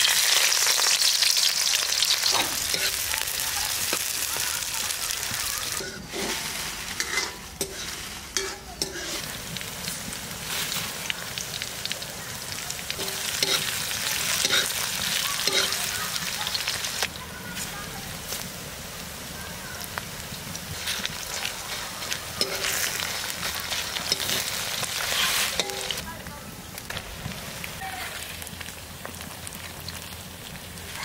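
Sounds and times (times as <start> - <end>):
onions sizzling in hot oil: 0.0 - 31.0
spatula scraping a pan: 2.0 - 4.5, 5.2 - 9.6, 12.9 - 15.9, 20.7 - 26.0.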